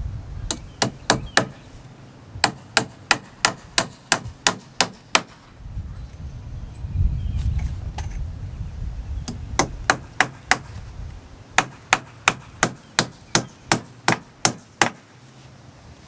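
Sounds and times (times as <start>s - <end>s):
hammer driving nails: 2.4s - 5.4s, 11.6s - 15.1s.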